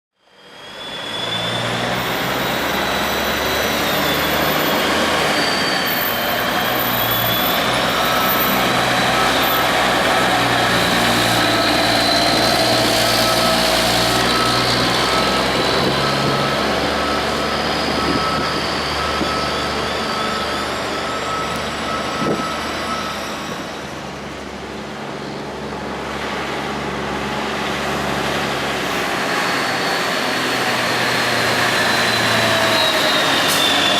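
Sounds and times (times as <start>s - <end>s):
backup alarm beeping: 7.2s - 23.4s.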